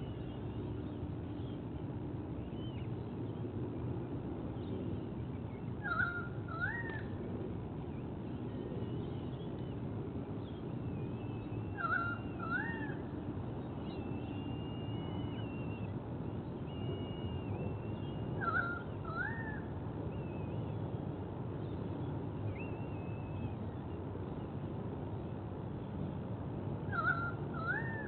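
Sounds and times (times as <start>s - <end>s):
low outdoor rumble: 0.0s - 28.0s
long drawn bird whistles: 5.5s - 7.1s, 10.4s - 13.1s, 13.7s - 20.8s, 21.8s - 24.0s, 26.9s - 28.0s
two-note rising bird call: 26.9s - 28.0s.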